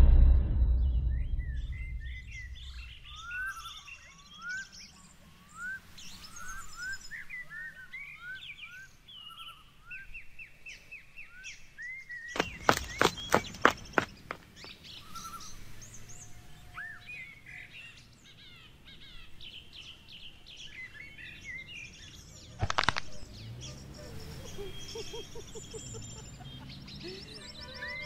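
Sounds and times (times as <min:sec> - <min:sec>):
birds chirping and calling: 0:01.6 - 0:28.0
sharp clicks: 0:22.6 - 0:23.3.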